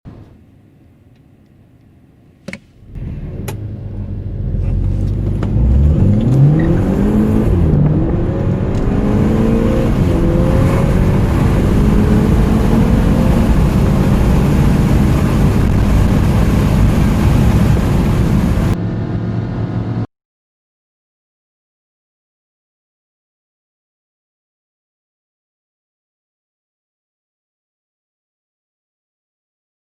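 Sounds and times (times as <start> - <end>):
car engine accelerating hard: 2.8 - 20.1.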